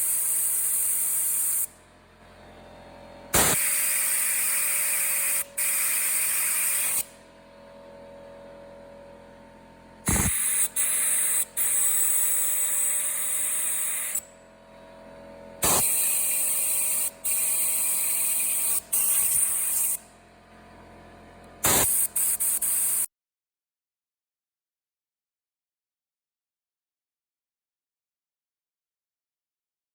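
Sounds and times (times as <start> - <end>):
pressurised spray hissing: 0.0 - 1.7, 10.1 - 11.4, 15.6 - 20.0, 21.6 - 23.1.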